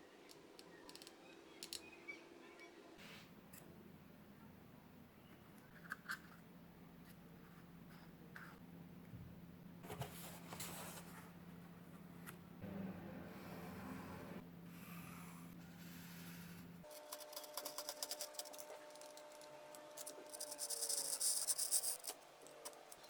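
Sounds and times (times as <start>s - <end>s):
scraping and rustling cardboard: 9.8s - 11.3s.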